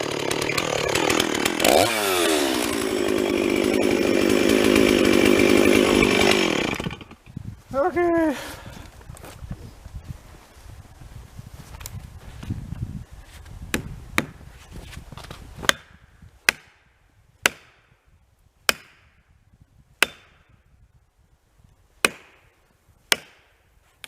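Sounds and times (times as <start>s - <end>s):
wedges struck into tree: 13.7s - 15.9s.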